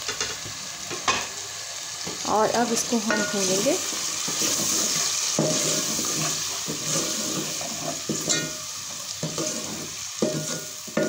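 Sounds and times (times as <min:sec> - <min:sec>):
masala sizzling in hot oil: 0:00.0 - 0:11.0
spoon stirring and scraping pot: 0:02.8 - 0:11.0.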